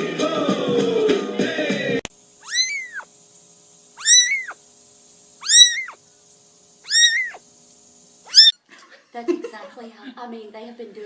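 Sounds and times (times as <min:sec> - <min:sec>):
cat meowing: 0:02.4 - 0:03.1, 0:04.0 - 0:04.6, 0:05.4 - 0:06.0, 0:06.8 - 0:07.4, 0:08.3 - 0:08.6.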